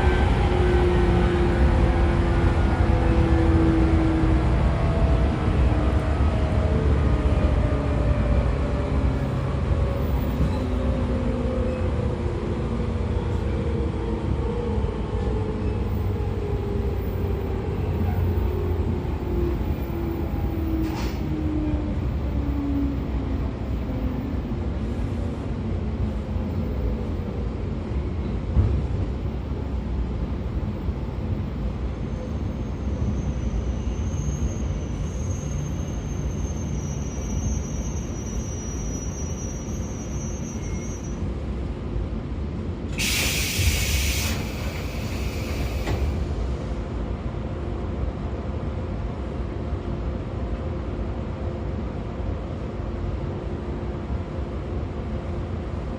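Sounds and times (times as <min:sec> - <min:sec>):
train wheels rumbling on rail: 0:00.0 - 0:55.9
short hiss: 0:43.0 - 0:46.2.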